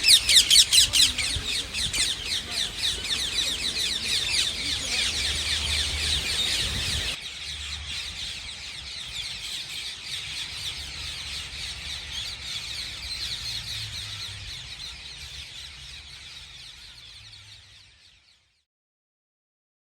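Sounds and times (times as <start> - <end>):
parakeets screeching: 0.0 - 18.0.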